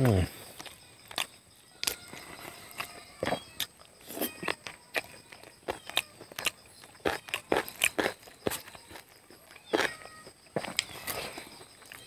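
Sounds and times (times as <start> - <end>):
chewing and lip smacking: 0.4 - 12.0.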